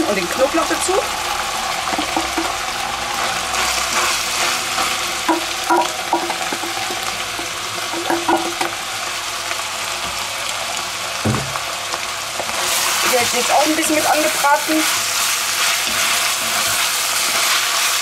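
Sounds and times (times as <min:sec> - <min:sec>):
meat sizzling in a pot: 0:00.0 - 0:18.0
utensils clinking against pot: 0:07.9 - 0:08.7.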